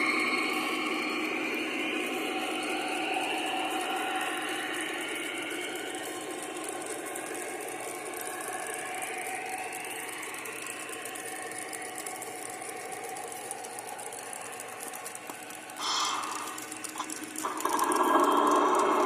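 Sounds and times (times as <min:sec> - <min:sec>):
faint motor whine: 0:00.0 - 0:19.0
model train wheels rattling: 0:11.0 - 0:19.0.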